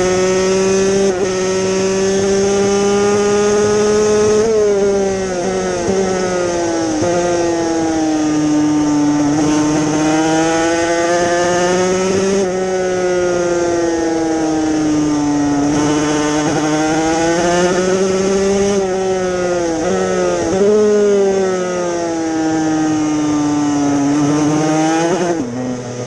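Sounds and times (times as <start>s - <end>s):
two-stroke motorcycle engine revving: 0.0s - 26.0s.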